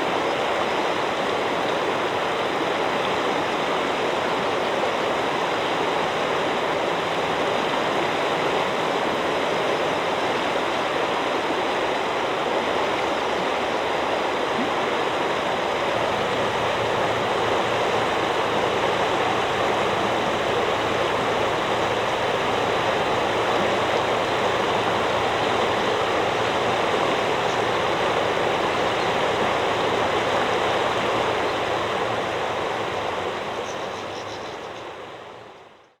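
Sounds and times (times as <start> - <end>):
river water rushing over stones: 0.0 - 35.6.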